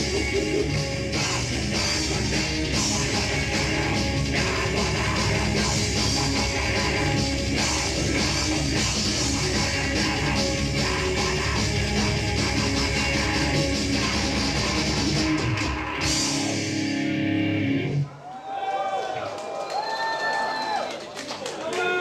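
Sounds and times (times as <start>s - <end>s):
drum kit: 0.0s - 17.3s
distorted electric guitars: 0.0s - 18.1s.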